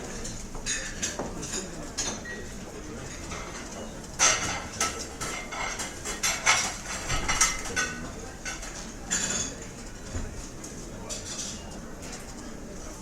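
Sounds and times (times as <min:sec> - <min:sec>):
restaurant background hum: 0:00.0 - 0:13.0
cutlery and dishes clinking: 0:03.1 - 0:09.8.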